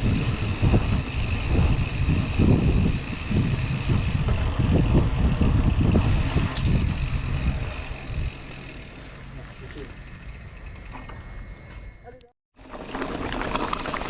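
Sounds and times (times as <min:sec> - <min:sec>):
wind buffeting microphone: 0:00.0 - 0:09.0
bike tyres rumbling over trail: 0:00.0 - 0:11.7, 0:12.6 - 0:14.0.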